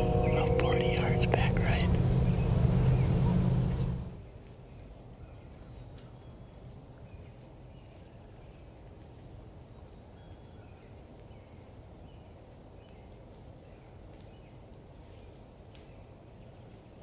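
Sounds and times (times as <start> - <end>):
low wind rumble: 0.0 - 4.2.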